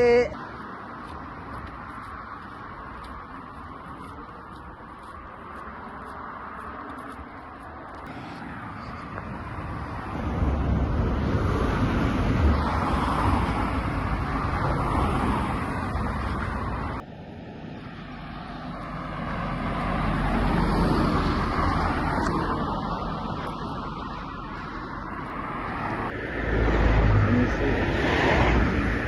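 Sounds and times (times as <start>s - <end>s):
cars passing: 0.0s - 29.0s.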